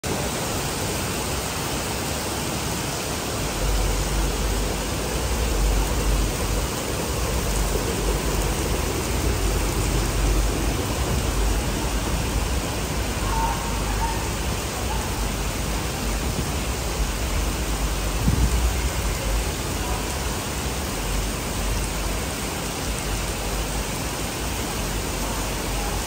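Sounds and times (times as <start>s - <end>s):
heavy rain on pavement: 0.0s - 26.0s
low rumble: 3.1s - 22.2s.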